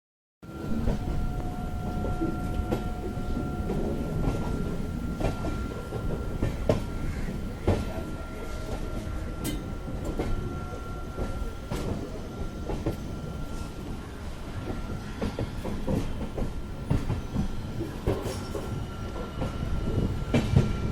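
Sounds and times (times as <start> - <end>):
thin high whine: 0.4 - 15.0
train rumbling on rails: 0.4 - 20.9.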